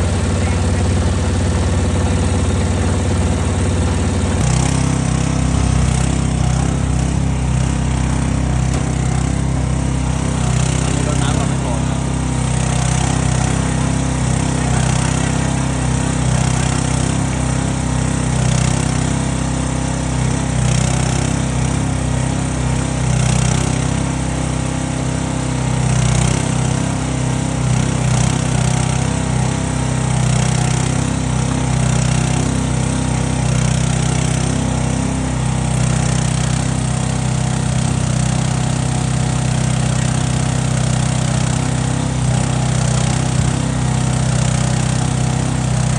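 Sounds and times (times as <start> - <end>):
engine running steadily: 0.0 - 45.9.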